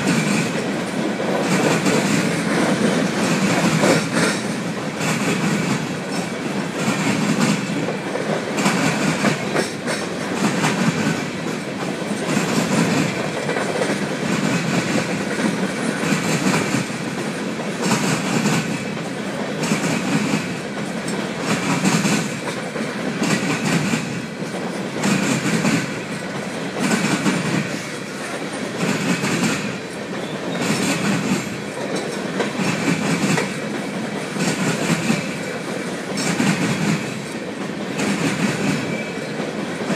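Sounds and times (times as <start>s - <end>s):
train wheels clicking over rail joints: 0.0s - 39.9s.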